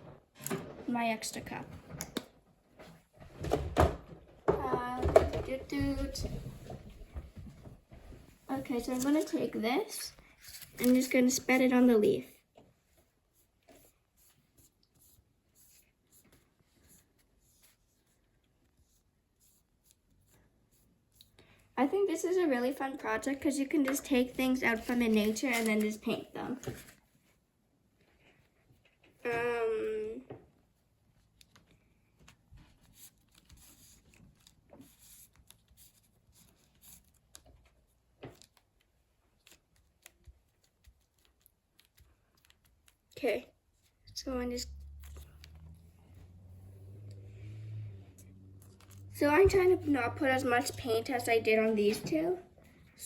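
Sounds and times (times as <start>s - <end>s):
paintbrush strokes: 8.0s - 21.4s, 30.8s - 52.1s
paper handling clicks: 24.7s - 27.0s, 31.2s - 43.2s.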